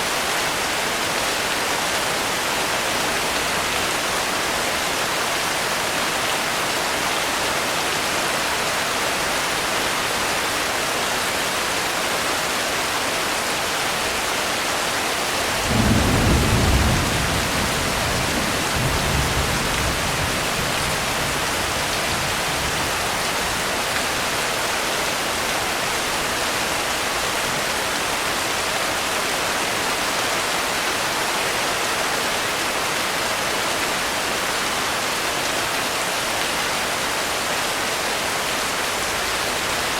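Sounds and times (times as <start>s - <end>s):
heavy rain: 0.0s - 39.9s
thunder rumbling: 15.4s - 23.0s.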